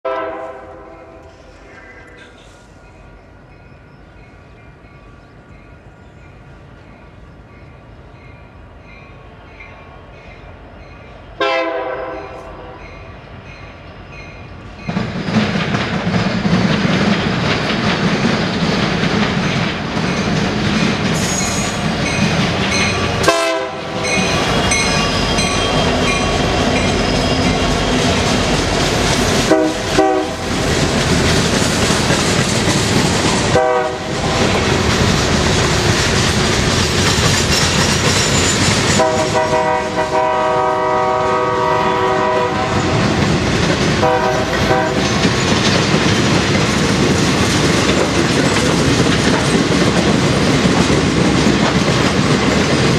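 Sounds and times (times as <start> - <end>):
locomotive air horn blasts: 0.1 - 1.2, 11.4 - 12.7, 23.1 - 24.2, 29.5 - 30.5, 33.5 - 34.4, 39.0 - 43.0, 44.0 - 45.1
train wheels clattering on rails: 13.6 - 52.9.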